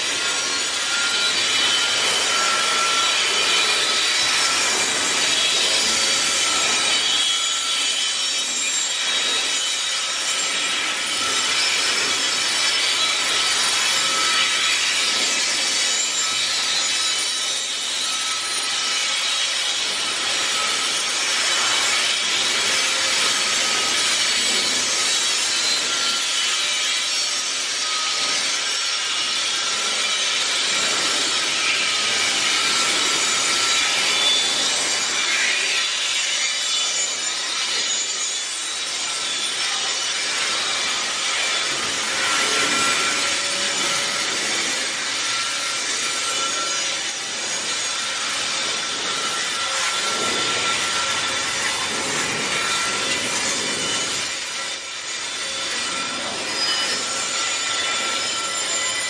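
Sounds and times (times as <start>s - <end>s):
steel wheels rumbling on rails: 48.4s - 54.8s.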